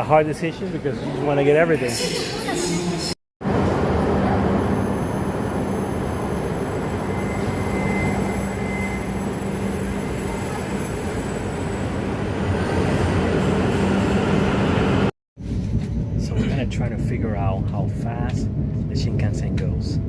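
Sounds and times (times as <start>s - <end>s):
train running rumble: 3.4s - 20.0s
faint high whine: 4.0s - 11.8s.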